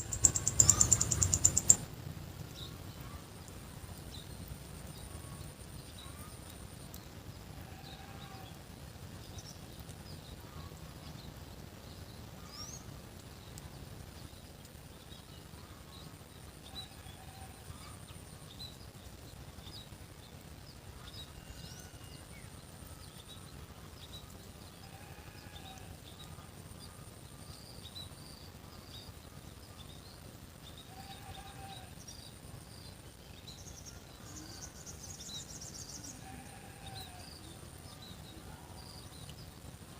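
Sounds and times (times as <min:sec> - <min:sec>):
low animal call: 0:00.0 - 0:01.8
small birds chirping: 0:00.0 - 0:03.2
insect drone: 0:00.0 - 0:39.9.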